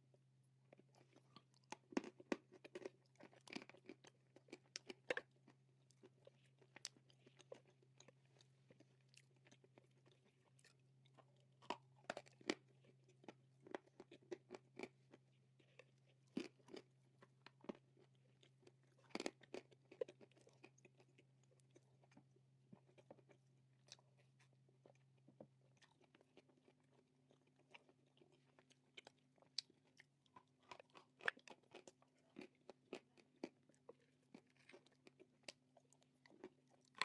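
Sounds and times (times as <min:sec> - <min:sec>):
chewing and crunching clay: 0:00.6 - 0:37.0.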